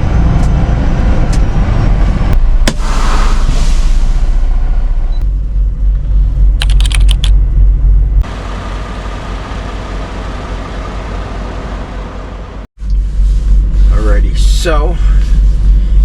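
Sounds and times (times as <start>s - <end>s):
truck engine and road rumble: 0.0s - 16.0s
sharp clicks: 6.6s - 7.4s.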